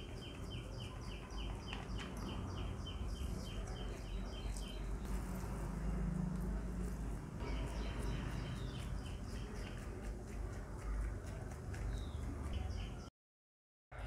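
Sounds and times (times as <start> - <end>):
bird chirping rapidly: 7.4 - 10.0.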